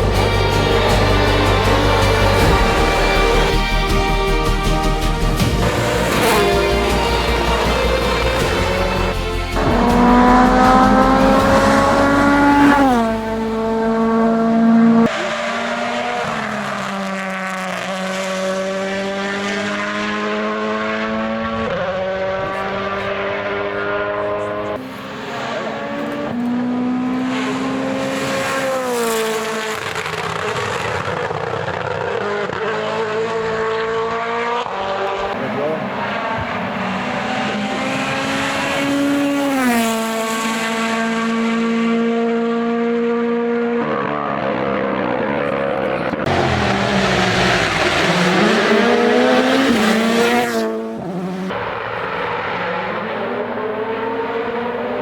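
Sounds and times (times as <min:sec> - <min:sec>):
rally car engine revving: 0:00.0 - 0:55.0
rushing tyre and air noise: 0:05.4 - 0:42.2, 0:43.8 - 0:55.0.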